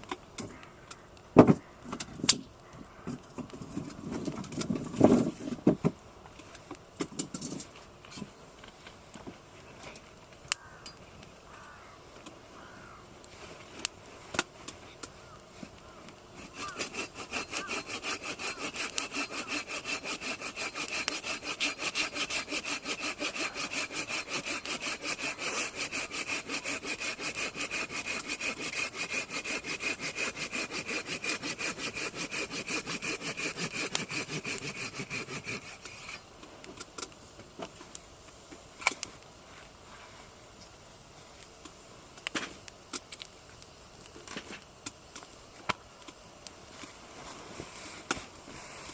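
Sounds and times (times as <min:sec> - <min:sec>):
hand saw cutting wood: 0:16.4 - 0:36.3.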